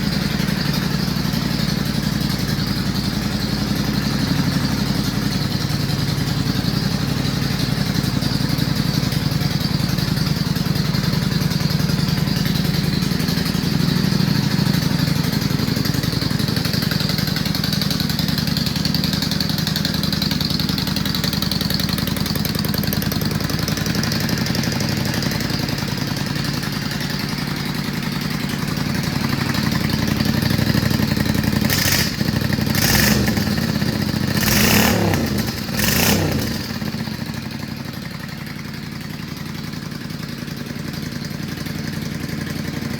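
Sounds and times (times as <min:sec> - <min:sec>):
motorcycle engine idling: 0:00.0 - 0:42.9.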